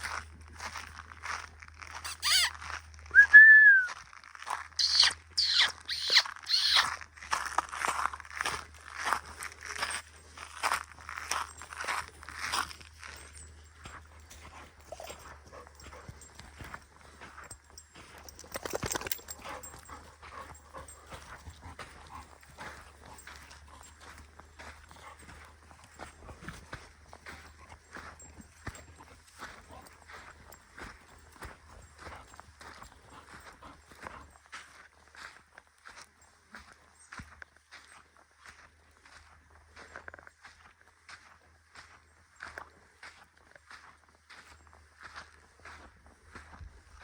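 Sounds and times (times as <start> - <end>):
footsteps crunching on dry ground: 0.0 - 47.0
short whistled note: 3.2 - 4.0
dog panting: 13.2 - 34.7.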